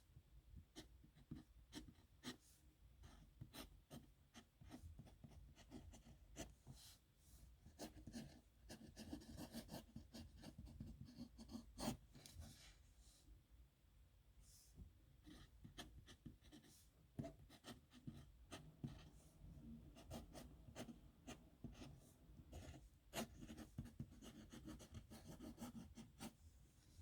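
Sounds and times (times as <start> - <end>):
pen scratching on paper: 7.8 - 12.0, 15.2 - 19.1, 20.0 - 26.4.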